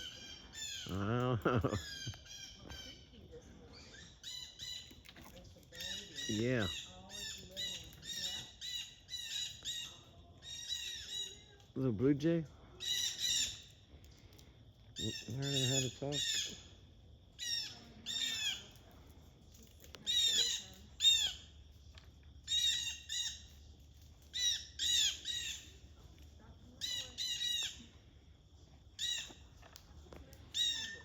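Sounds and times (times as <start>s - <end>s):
blue jay squawking: 24.3s - 25.7s.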